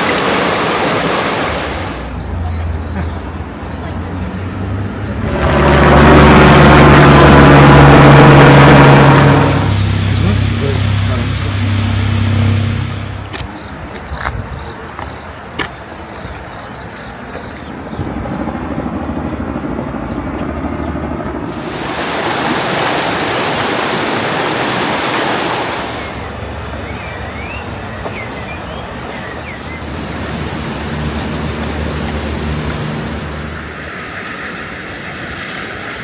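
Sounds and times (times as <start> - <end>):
fast-flowing river water rushing: 0.0 - 2.2, 21.5 - 26.5, 29.4 - 34.0.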